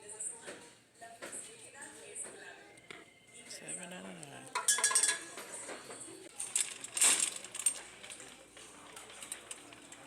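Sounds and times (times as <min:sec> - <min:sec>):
small hard items clinking: 0:06.4 - 0:10.0.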